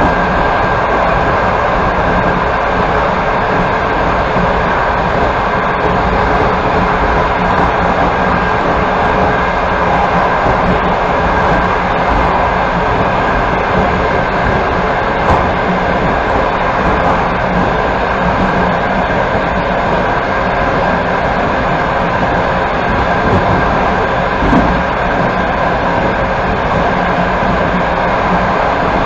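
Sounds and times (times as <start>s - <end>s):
passenger train running: 0.0s - 29.0s.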